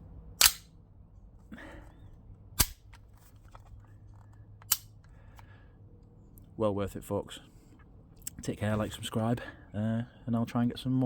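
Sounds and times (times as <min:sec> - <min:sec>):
air pistol shots: 0:00.4 - 0:00.7, 0:02.6 - 0:02.9.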